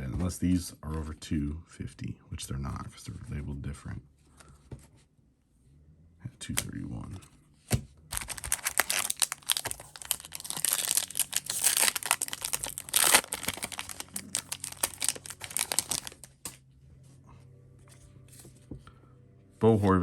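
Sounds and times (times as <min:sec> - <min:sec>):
foil wrapper tearing and crinkling: 0:08.1 - 0:16.6.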